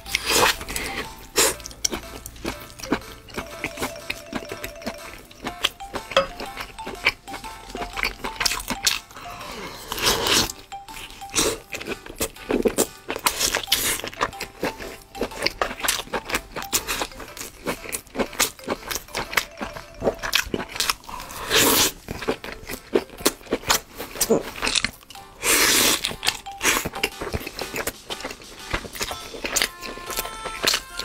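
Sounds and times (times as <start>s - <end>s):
faint background music: 0.0s - 31.0s
person biting and chewing food: 0.0s - 31.0s.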